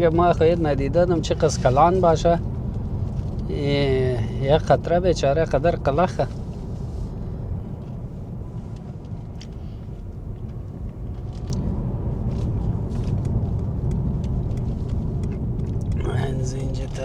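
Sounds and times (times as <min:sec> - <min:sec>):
car road noise rumble: 0:00.0 - 0:17.0.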